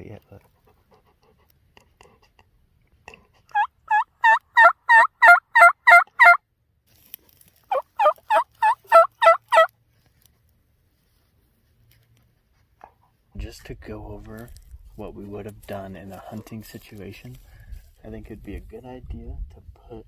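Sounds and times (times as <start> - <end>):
turkey call yelps: 3.5 - 6.4, 7.7 - 9.7.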